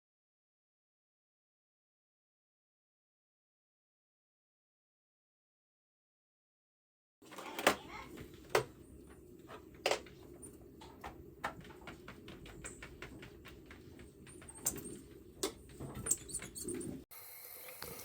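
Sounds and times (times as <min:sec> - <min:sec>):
light clicks and taps: 0:07.7 - 0:17.0.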